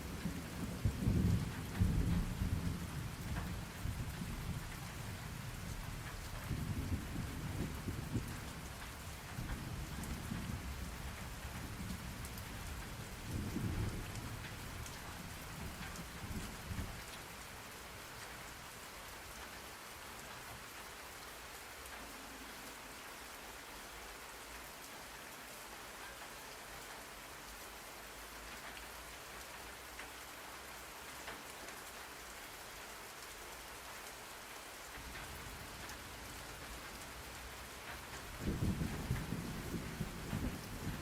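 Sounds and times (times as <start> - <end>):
rain hiss: 0.0 - 41.0
rolling thunder: 38.3 - 41.0.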